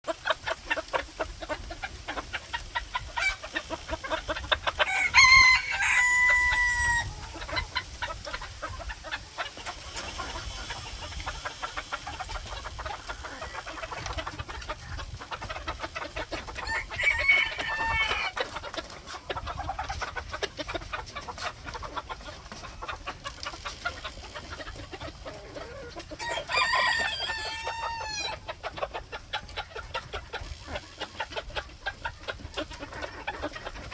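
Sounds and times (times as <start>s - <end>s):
hen clucking: 0.0s - 33.9s
rooster crowing: 4.9s - 7.1s, 16.6s - 18.4s, 26.2s - 28.3s.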